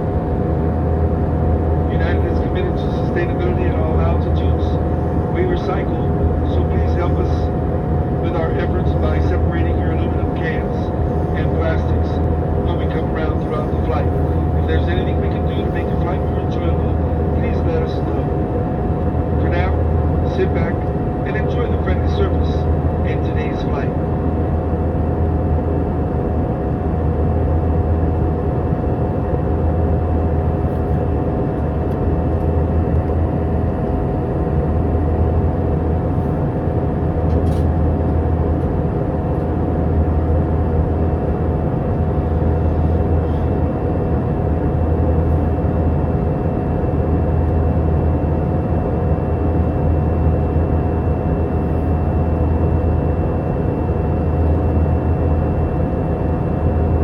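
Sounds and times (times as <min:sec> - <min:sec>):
jet engine cabin drone: 0:00.0 - 0:57.0
faint steady tones: 0:01.3 - 0:24.5.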